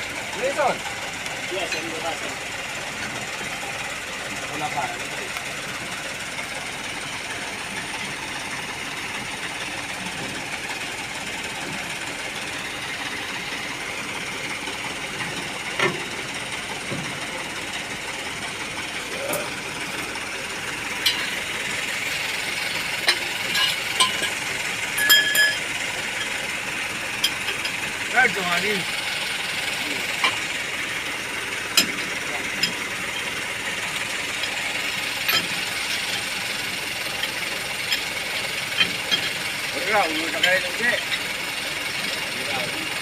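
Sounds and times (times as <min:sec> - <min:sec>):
truck engine idling: 0:00.0 - 0:43.0
sharp metallic clanks: 0:21.0 - 0:26.4, 0:27.1 - 0:28.9, 0:31.7 - 0:41.4.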